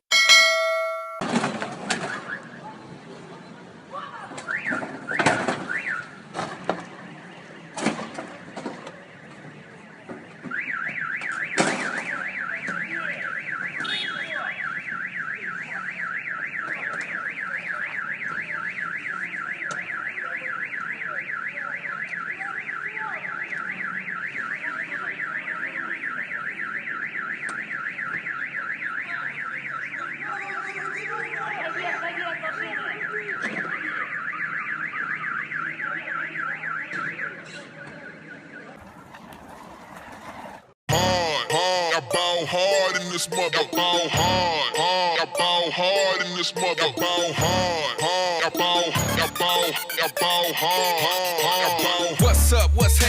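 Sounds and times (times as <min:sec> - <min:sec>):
electronic alarm siren warbling: 0:42.4 - 0:52.8.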